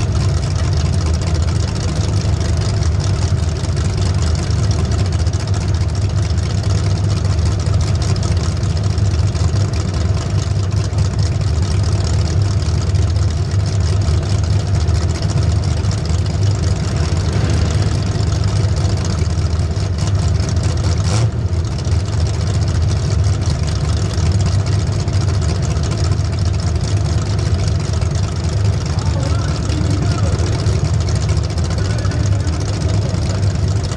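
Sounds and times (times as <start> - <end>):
racing engine running loudly: 12.5 - 33.9.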